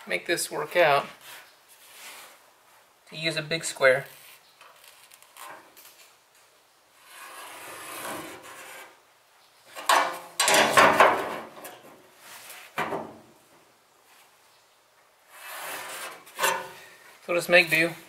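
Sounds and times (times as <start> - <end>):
metal square scraping steel panel: 7.0 - 9.0, 15.3 - 16.8.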